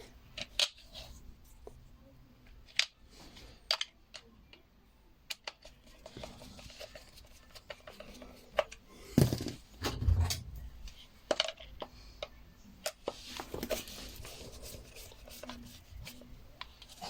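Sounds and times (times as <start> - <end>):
heavy thump: 9.3 - 10.6.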